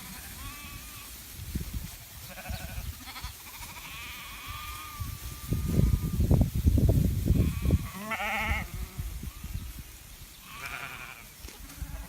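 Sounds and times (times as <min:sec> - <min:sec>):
sheep bleating: 0:00.0 - 0:01.1, 0:02.2 - 0:06.2, 0:07.3 - 0:09.6, 0:10.4 - 0:12.0.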